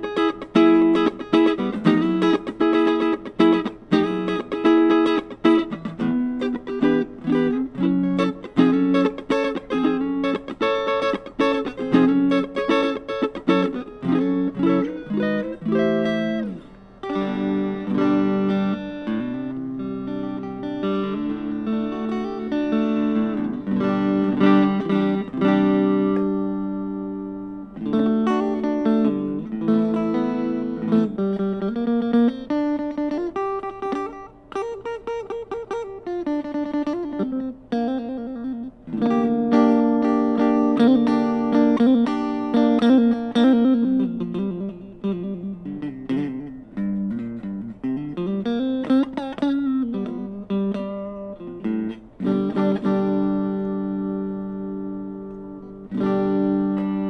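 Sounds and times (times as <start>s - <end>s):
electric guitar playing: 0.0s - 57.0s.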